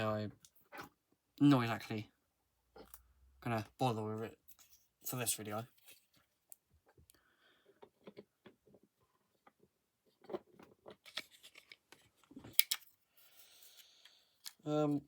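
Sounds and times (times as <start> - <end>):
plastic parts clicking and scraping: 10.2 - 14.7
plastic parts snapping: 12.5 - 12.9.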